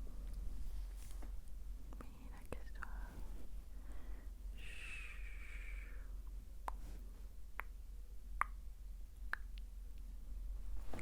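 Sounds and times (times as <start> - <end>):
wet mouth clicks and pops: 7.6 - 7.8.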